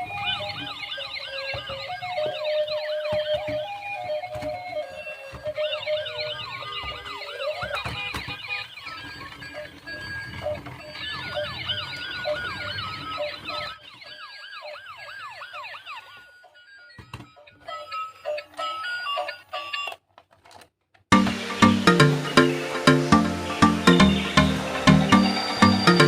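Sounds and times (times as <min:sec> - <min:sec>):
toy police siren yelping: 0:00.0 - 0:20.0.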